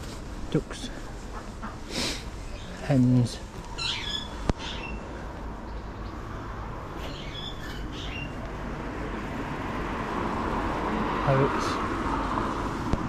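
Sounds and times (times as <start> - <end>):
birds squawking: 3.7 - 5.2, 7.0 - 8.4.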